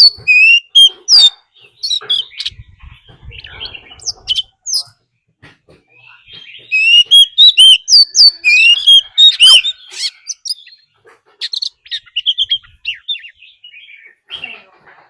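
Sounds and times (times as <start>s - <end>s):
bird singing whistled phrases: 0.0s - 2.6s, 6.3s - 10.8s.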